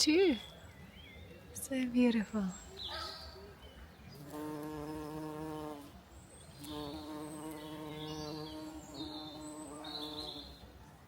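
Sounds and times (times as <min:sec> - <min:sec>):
bees buzzing: 0:04.2 - 0:05.9, 0:06.6 - 0:10.4.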